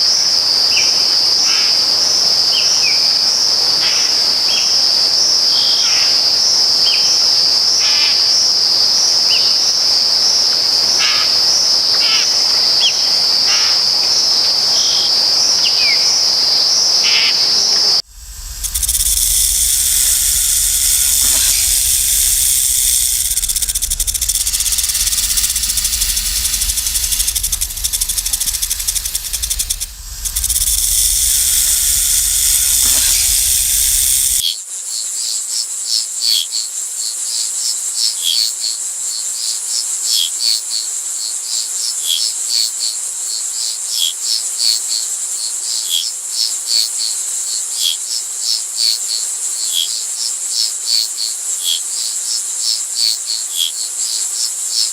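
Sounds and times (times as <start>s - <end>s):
high-pitched insect chorus: 0.0s - 54.9s
insect trill with chirps: 0.0s - 54.9s
low rumble: 18.0s - 34.4s.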